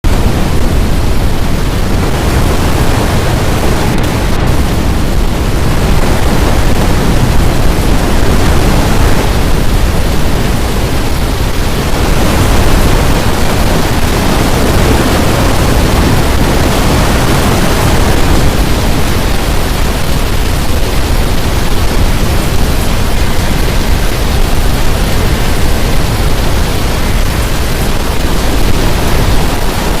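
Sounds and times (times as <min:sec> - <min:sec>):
storm wind on microphone: 0:00.0 - 0:30.0.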